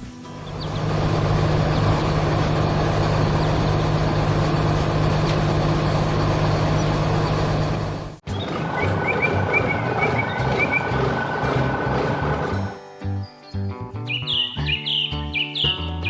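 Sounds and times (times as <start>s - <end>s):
heavy vehicle engine droning: 0.2s - 12.8s.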